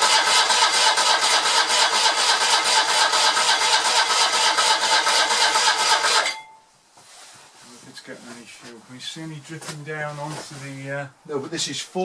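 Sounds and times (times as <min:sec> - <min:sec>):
engine cranking by starter motor: 0:00.0 - 0:06.4.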